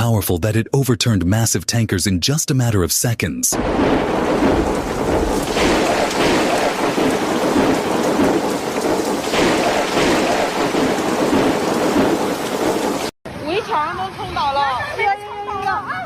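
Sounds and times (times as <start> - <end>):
heavy rain pouring: 3.6 - 13.2.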